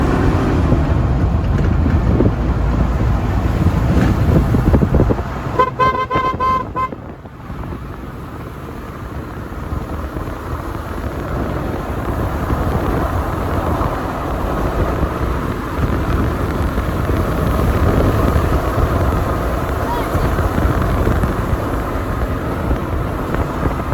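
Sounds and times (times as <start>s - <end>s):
road vehicle rumble: 0.0s - 23.9s
car horn short beeps: 5.5s - 7.0s.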